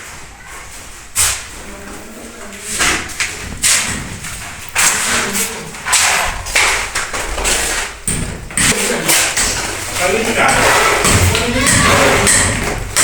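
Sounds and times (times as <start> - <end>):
thuds and scraping knocks: 2.8 - 13.0.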